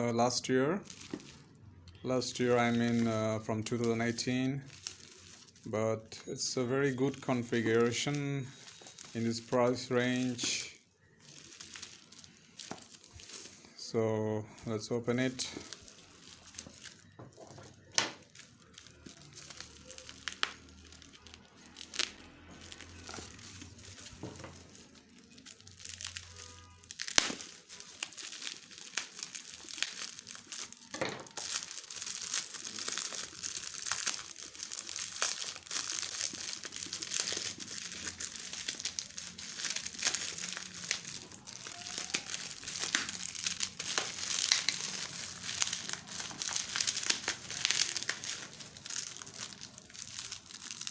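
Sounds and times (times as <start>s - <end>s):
wrapping crinkling and tearing: 0.0s - 50.9s.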